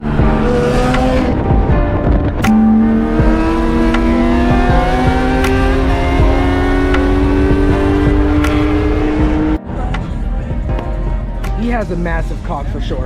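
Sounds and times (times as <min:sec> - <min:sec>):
car engine accelerating: 0:00.0 - 0:10.2
music with light regular beat: 0:00.0 - 0:13.0.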